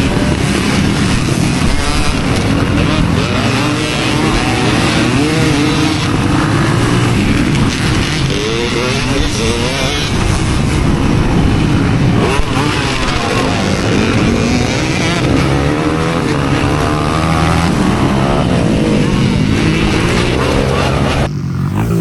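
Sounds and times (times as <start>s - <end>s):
dirt bike engine revving: 0.0s - 22.0s
dense rumble: 20.9s - 22.0s.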